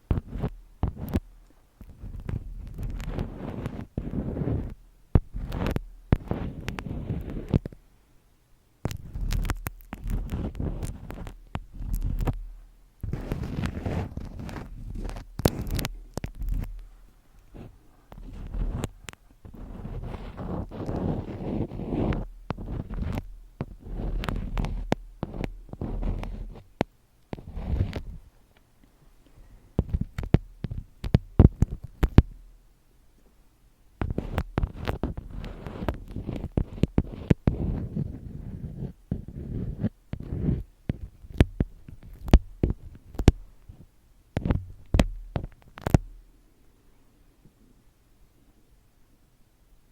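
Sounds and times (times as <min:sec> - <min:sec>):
crinkling and rustling: 0:00.0 - 0:07.8, 0:08.9 - 0:32.4, 0:34.0 - 0:46.3
sharp taps and clicks: 0:29.8 - 0:32.4, 0:40.1 - 0:43.4, 0:44.4 - 0:46.2
sharp tapping on objects: 0:44.4 - 0:46.2.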